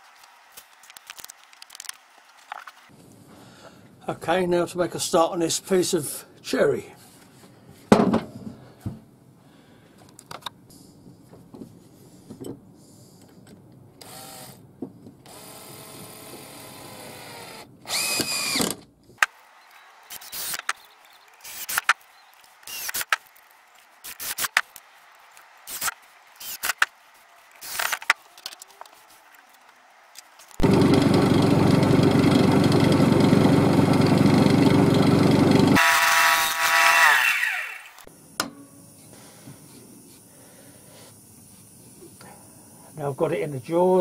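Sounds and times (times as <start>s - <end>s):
power drill running: 14.0s - 14.6s, 15.3s - 18.7s, 19.6s - 23.2s, 25.7s - 26.8s, 27.6s - 28.0s, 30.6s - 38.1s.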